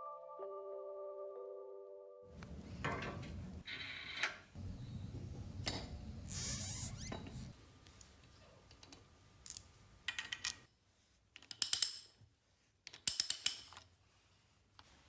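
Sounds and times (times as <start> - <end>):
small hard clicks and clinks: 12.9 - 13.9.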